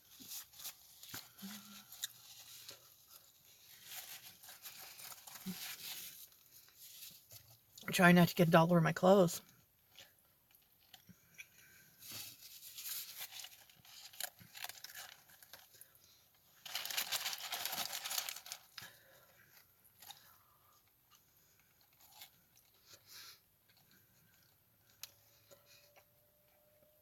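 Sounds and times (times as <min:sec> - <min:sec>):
paper wrapping crinkling: 0:00.0 - 0:07.4, 0:12.0 - 0:19.2.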